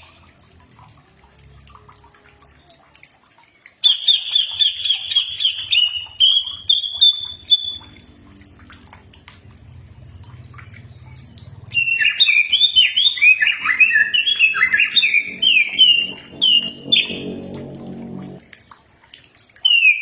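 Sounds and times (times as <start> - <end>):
bird whistling song: 3.8 - 8.0, 11.7 - 17.2, 19.6 - 20.0
low hum: 12.5 - 18.9.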